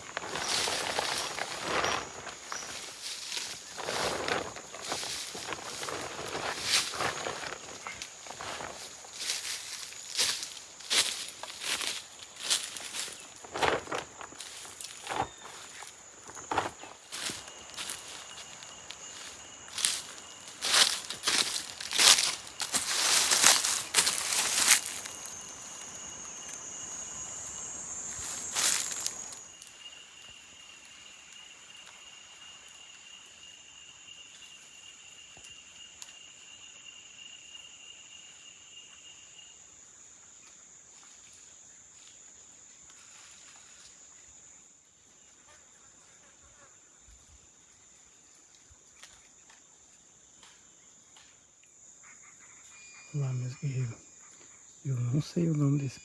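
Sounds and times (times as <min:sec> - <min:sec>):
loud rustling and crinkling: 0:00.0 - 0:26.6, 0:28.1 - 0:29.4
lower insect call: 0:00.0 - 0:56.0
high-pitched insect shrill: 0:17.2 - 0:29.5.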